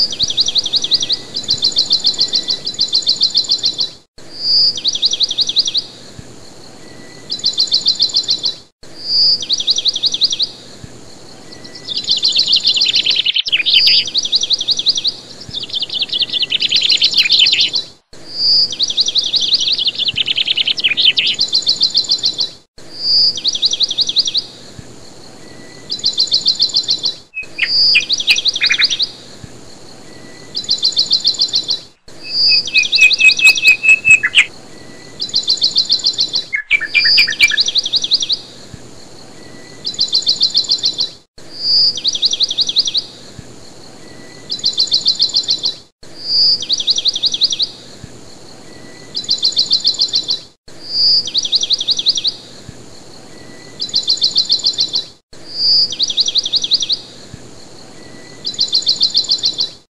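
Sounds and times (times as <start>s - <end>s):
lower bird chirps: 0.0s - 59.9s
bird whistle and rapid trill: 11.6s - 17.8s, 18.4s - 24.3s, 25.9s - 29.1s, 30.4s - 34.5s, 35.2s - 38.4s.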